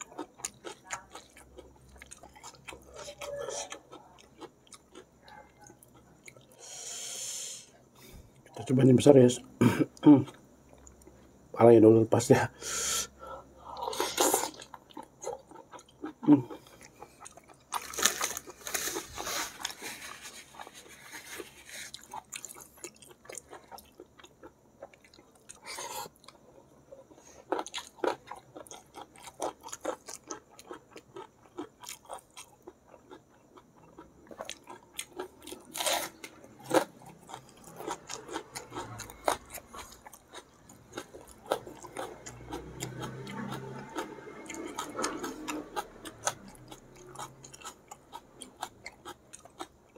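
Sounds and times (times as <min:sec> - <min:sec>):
close-up chewing with wet clicks: 0:00.0 - 0:02.9, 0:03.7 - 0:06.6, 0:14.5 - 0:18.0, 0:22.0 - 0:26.8, 0:27.5 - 0:49.9.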